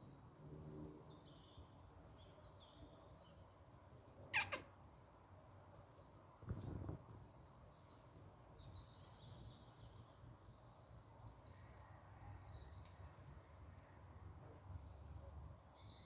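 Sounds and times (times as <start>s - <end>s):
faint high bird chirps: 4.3s - 4.7s.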